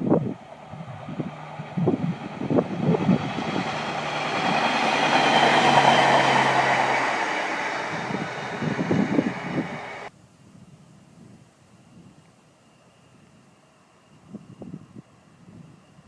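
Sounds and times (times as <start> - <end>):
low engine hum: 0.0 - 10.1
rushing rail noise: 0.0 - 10.1.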